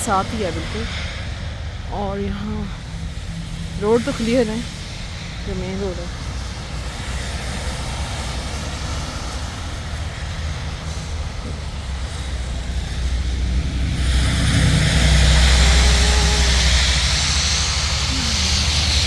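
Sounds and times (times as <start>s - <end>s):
rumble of passing vehicles: 0.0s - 19.0s
approaching vehicle tyre hiss: 6.1s - 19.0s.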